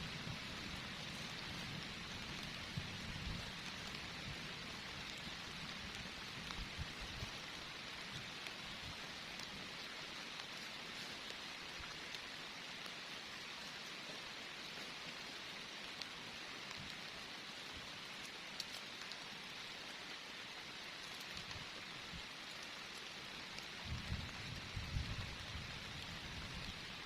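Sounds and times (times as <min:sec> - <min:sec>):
heavy rain hissing: 0:00.0 - 0:27.0
single raindrop ticks: 0:18.2 - 0:19.3.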